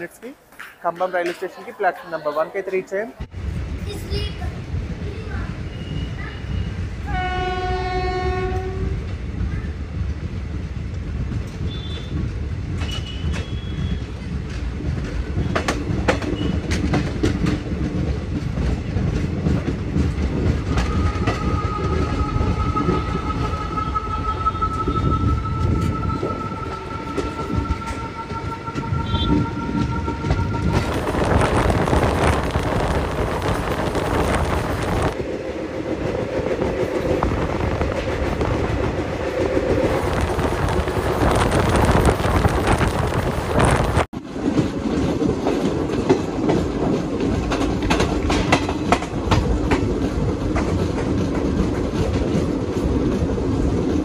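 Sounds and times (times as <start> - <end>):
train rumbling over rails: 0.0 - 54.0
long two-tone train horn: 7.0 - 9.0, 20.8 - 32.0
short train horn blast: 7.0 - 9.0, 20.7 - 32.0.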